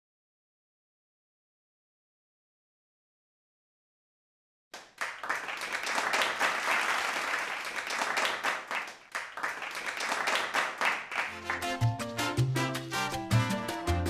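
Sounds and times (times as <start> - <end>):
crowd applauding: 4.8 - 12.2.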